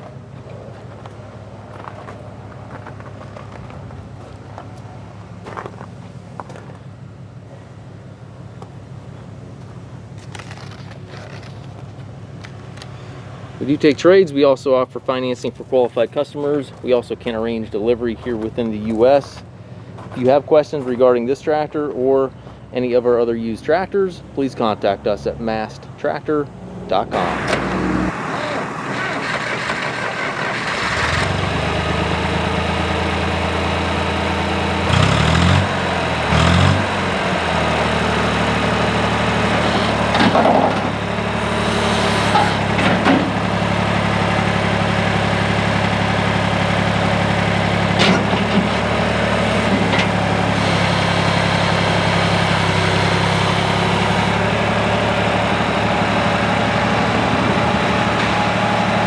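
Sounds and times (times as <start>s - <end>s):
tractor engine starting and revving: 27.1s - 59.0s.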